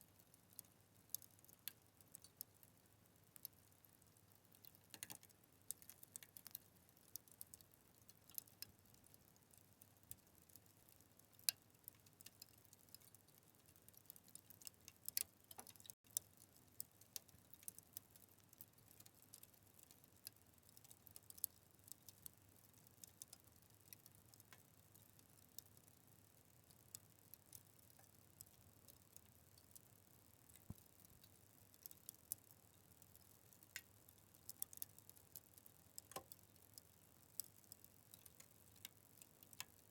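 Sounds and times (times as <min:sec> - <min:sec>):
wood fire crackling: 0:00.1 - 0:39.9.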